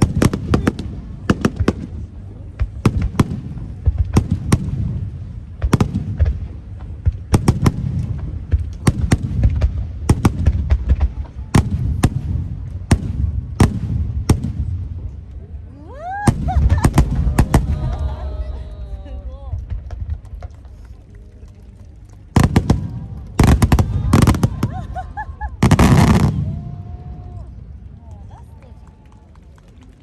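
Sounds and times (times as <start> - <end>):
low rumble of booms: 0.0 - 15.4, 19.5 - 20.8.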